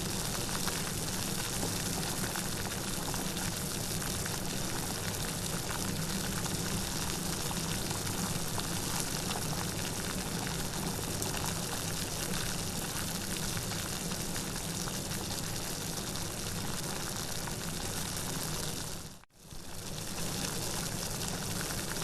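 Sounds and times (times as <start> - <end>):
steady rain: 0.0 - 15.2.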